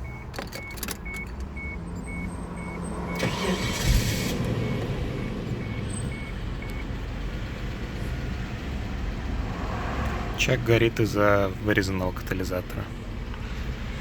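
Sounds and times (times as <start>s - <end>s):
dashboard warning chime beeping: 0.0s - 7.1s
car engine starting and idling: 0.0s - 14.0s.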